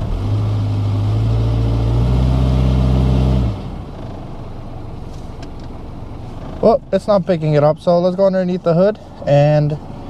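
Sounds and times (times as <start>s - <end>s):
car engine revving then idling: 0.0s - 7.1s.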